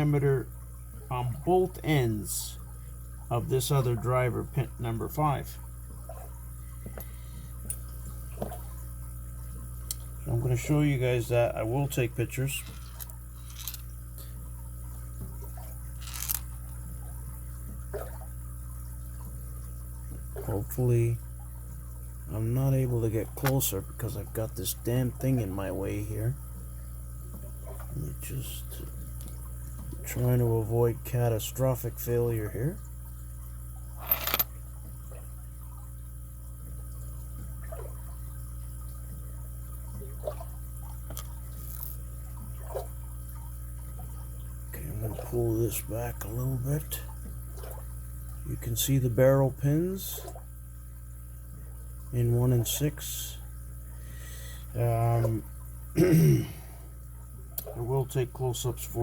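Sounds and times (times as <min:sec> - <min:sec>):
low electrical hum: 0:00.0 - 0:59.0
padlock parts clicking: 0:16.0 - 0:16.4.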